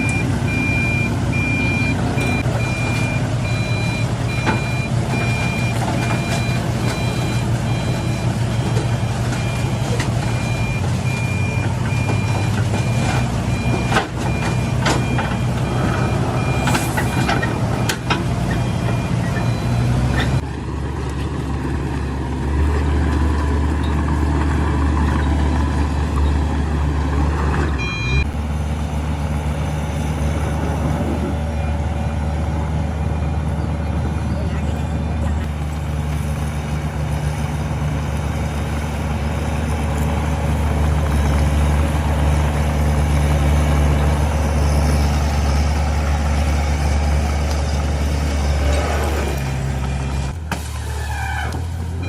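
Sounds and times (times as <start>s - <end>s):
reversing alarm beeping: 0.0s - 20.3s, 27.7s - 28.4s
heavy diesel machinery engines: 0.0s - 52.0s.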